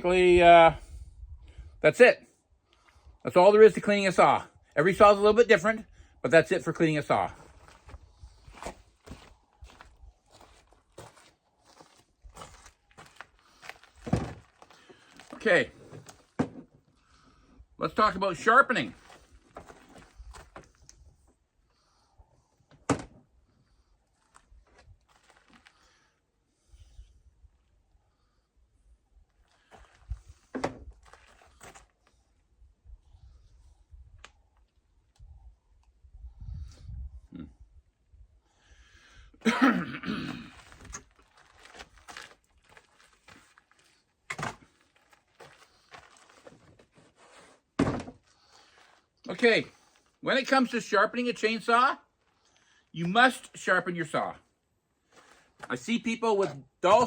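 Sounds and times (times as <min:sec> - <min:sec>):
objects being handled and set down: 0:12.6 - 0:16.8, 0:29.7 - 0:31.9, 0:40.5 - 0:49.0
solid thunk: 0:22.9 - 0:23.2, 0:47.8 - 0:48.2
man coughing: 0:39.4 - 0:40.6.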